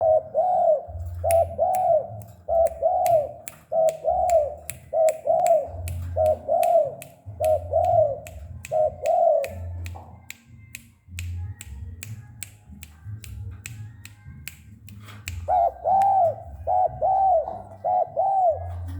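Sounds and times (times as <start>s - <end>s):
dove cooing: 0.0s - 9.8s, 15.4s - 18.9s
sharp clicks: 1.2s - 16.4s.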